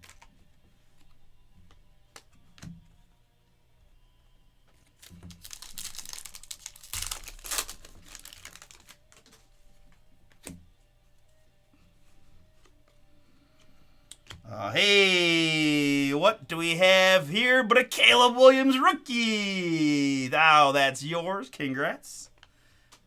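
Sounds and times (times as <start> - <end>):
crinkly rustling: 5.0 - 9.6
trading cards flipped by hand: 5.2 - 9.4.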